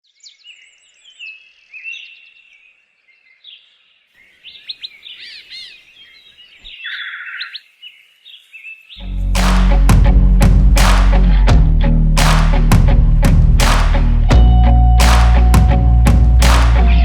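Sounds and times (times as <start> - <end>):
birds singing and calling: 0.2 - 9.0.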